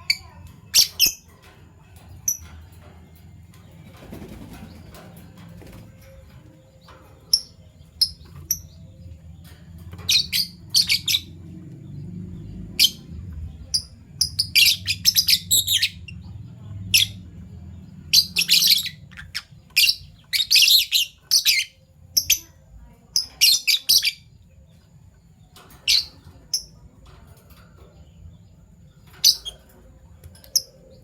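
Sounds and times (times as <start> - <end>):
low steady hum: 0.0 - 23.4
lovebirds chirping: 0.0 - 31.0.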